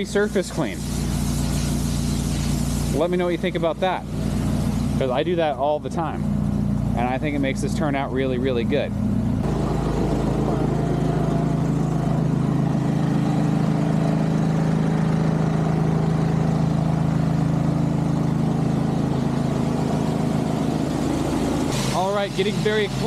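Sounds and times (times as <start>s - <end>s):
pressure washer spray hiss: 0.0s - 3.3s, 21.6s - 23.0s
pressure washer engine running: 0.0s - 23.0s.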